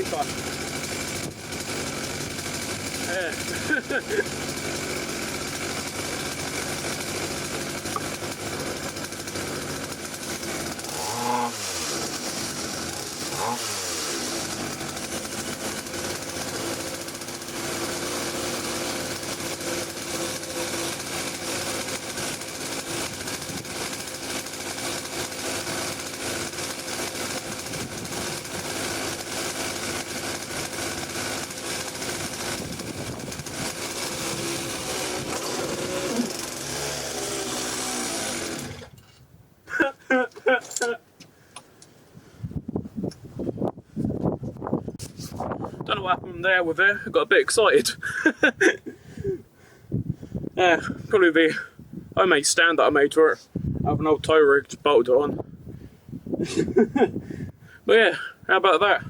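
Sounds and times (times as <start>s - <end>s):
two-stroke engine running: 0.0s - 39.0s.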